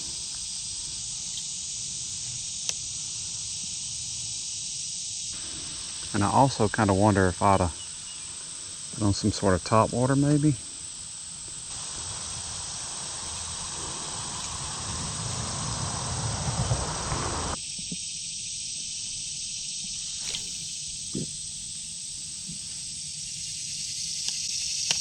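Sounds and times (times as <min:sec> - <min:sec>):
insects chirring: 0:00.0 - 0:25.0
low rumbling noise: 0:11.7 - 0:17.6.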